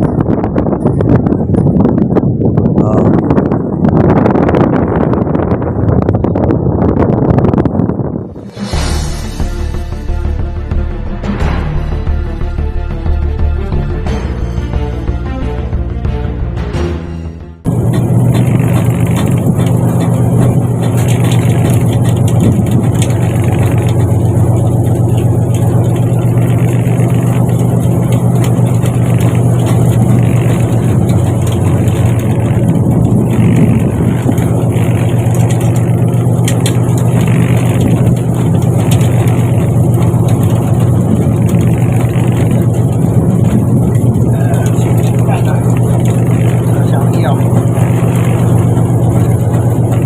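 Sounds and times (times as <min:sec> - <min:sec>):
boat engine humming: 0:17.7 - 0:50.0.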